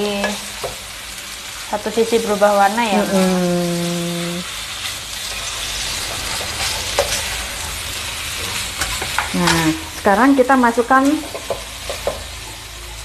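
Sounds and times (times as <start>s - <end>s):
food sizzling in hot oil: 0.0s - 13.0s
spatula tapping pan: 11.2s - 12.3s.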